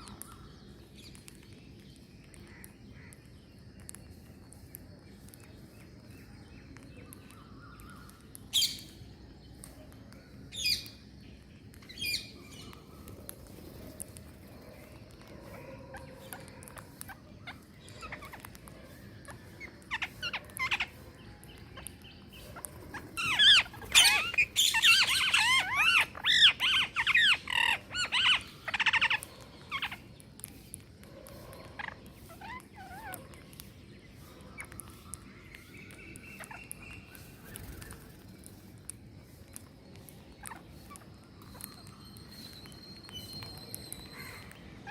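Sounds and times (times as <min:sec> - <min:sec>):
parrots squawking: 0:15.5 - 0:21.0, 0:22.5 - 0:30.1, 0:31.3 - 0:33.4.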